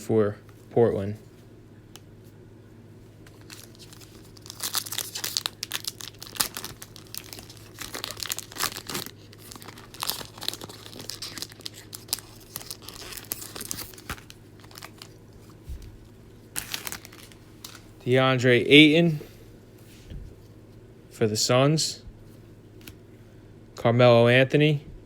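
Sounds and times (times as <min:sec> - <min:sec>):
plastic wrapping crinkling and tearing: 0:03.3 - 0:18.0.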